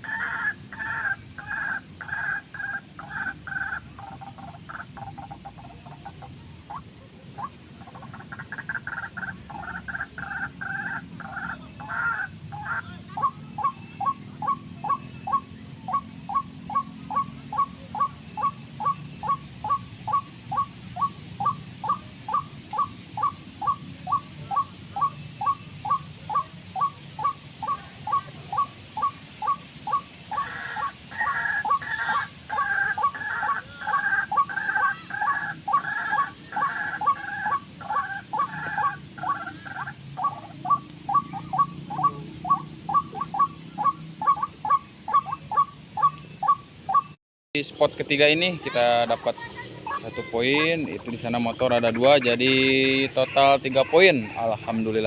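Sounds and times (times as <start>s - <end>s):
fuller repeating bird call: 0.0s - 55.0s.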